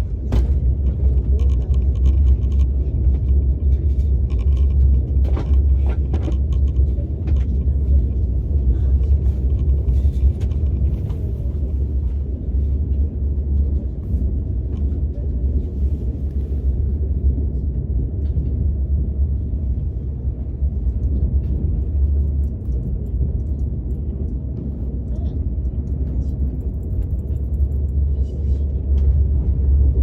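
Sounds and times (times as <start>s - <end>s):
train rumble inside cabin: 0.0s - 30.0s.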